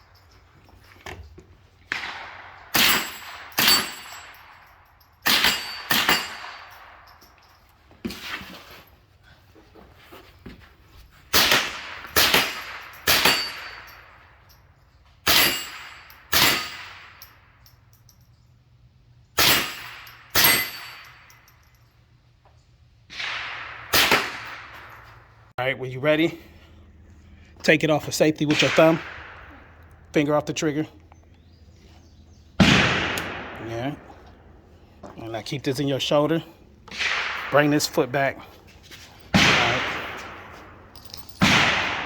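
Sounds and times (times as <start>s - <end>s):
suppressed rifle shots: 1.9s - 3.9s, 23.1s - 25.0s, 28.5s - 29.8s, 32.6s - 34.1s, 36.9s - 38.0s, 41.4s - 42.0s.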